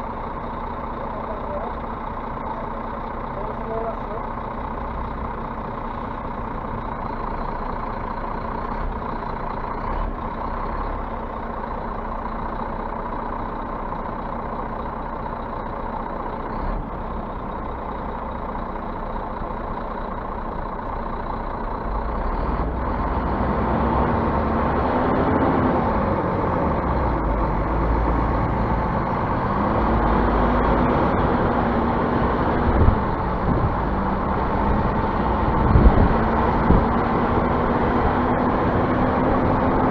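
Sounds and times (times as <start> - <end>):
bus engine revving: 19.6 - 39.9.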